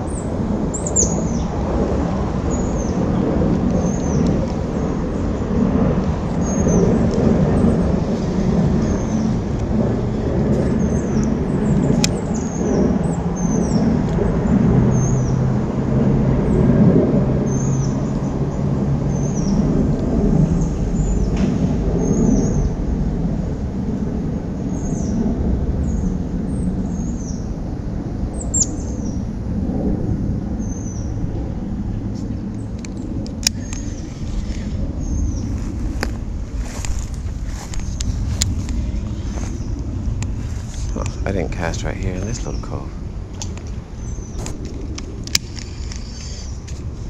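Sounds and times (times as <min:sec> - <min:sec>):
low rumble: 0:00.0 - 0:47.0
small bird chirping: 0:45.6 - 0:46.7.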